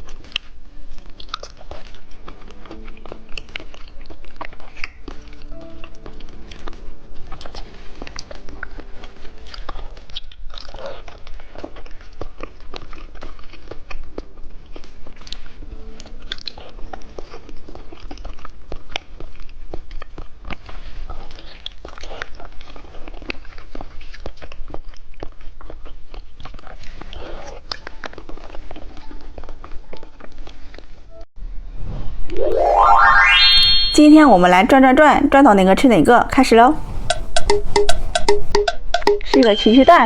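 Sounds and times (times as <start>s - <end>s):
candy being bitten and chewed: 0.1s - 5.2s.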